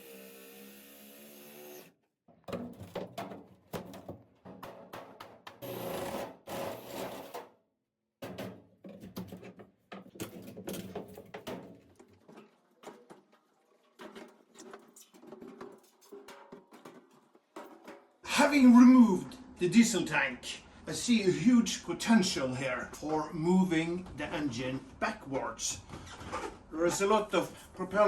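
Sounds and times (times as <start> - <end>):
wood being cut with tools: 0.0 - 2.0.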